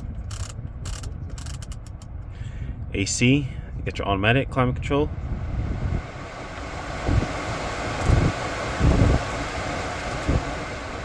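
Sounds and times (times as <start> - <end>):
car blower fan air rush: 4.6 - 11.0.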